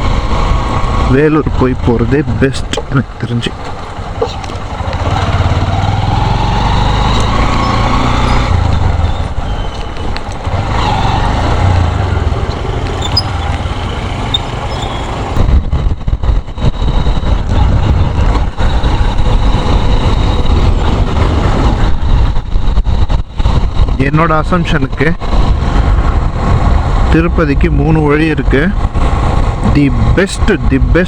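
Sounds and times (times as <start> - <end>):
motorcycle engine running: 0.0 - 24.3
road noise: 0.0 - 31.0
wind buffeting microphone: 0.0 - 31.0.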